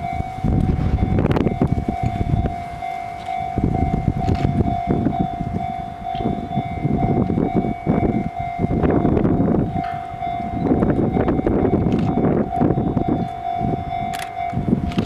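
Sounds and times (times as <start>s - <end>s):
freight train rolling past: 0.0s - 15.0s
level-crossing alarm bell: 0.0s - 15.0s.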